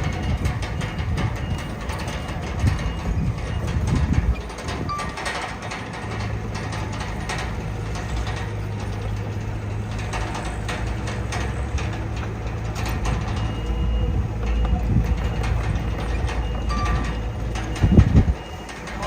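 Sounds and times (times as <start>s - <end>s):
bulldozer diesel engine running: 0.0s - 19.0s
metal clanks and rattles: 0.0s - 19.0s.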